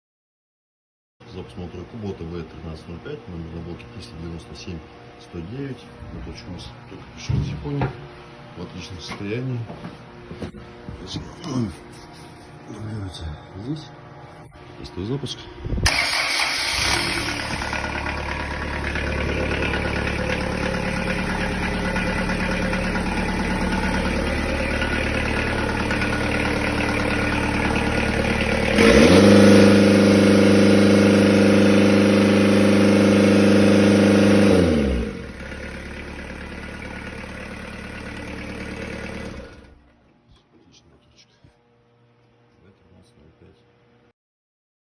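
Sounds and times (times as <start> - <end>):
diesel engine idling and revving: 15.8 - 39.8.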